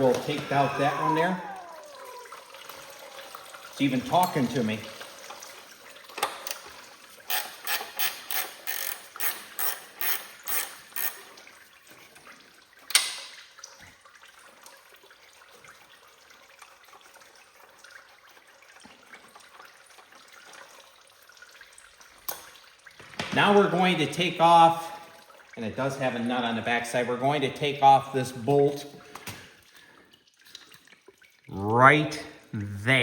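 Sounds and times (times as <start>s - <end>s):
ratchet wrench clicking: 7.3s - 11.2s.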